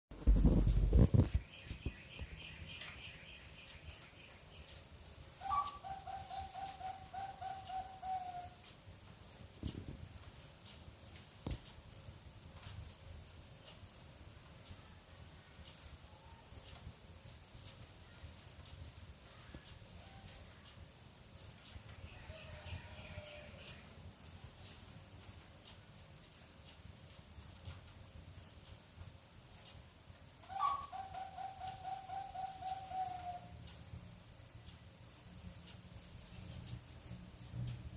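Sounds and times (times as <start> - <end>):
dove cooing: 5.4 - 8.6, 30.5 - 33.5.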